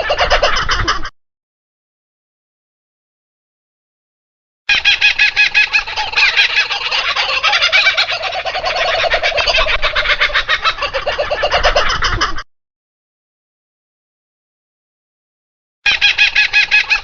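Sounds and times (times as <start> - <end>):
bird rattling calls: 4.7 - 11.5.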